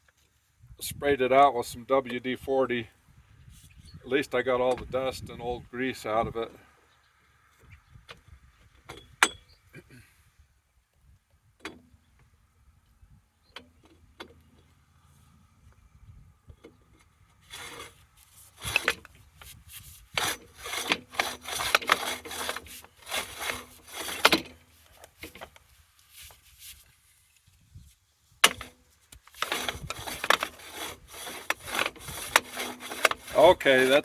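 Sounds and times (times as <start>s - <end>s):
metal parts scraping together: 17.4s - 25.5s, 28.4s - 34.0s.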